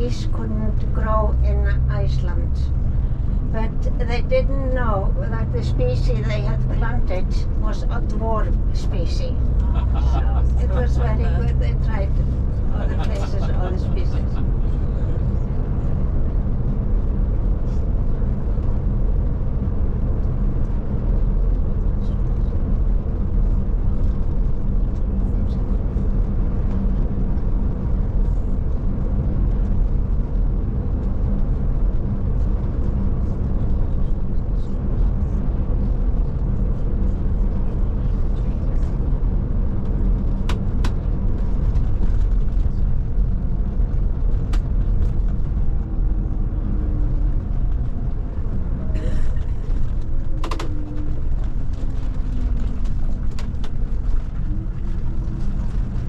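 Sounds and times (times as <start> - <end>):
coach engine and road rumble: 0.0 - 56.0.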